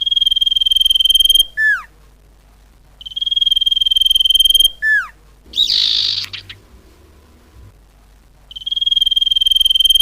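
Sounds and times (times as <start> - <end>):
faint low hum: 0.0 - 10.0
harsh hissing bird call: 4.8 - 6.6.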